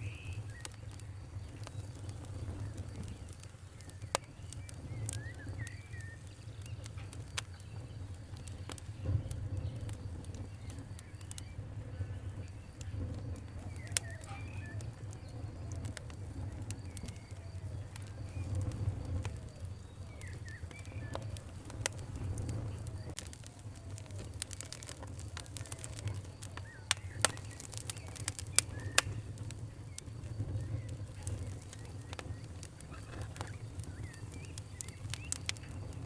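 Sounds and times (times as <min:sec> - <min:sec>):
faint birds chirping: 0:00.0 - 0:36.0
wood fire crackling: 0:00.0 - 0:36.0.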